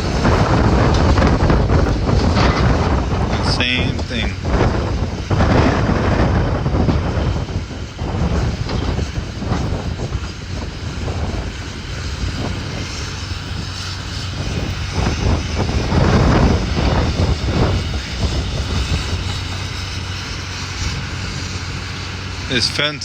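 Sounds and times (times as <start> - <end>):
diesel engine of demolition machinery: 0.0 - 23.0.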